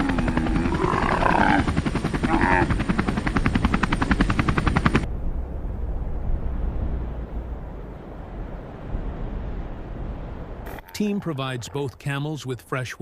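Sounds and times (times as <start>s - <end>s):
helicopter rotor chopping: 0.0s - 5.1s
low steady rumble: 5.0s - 10.9s.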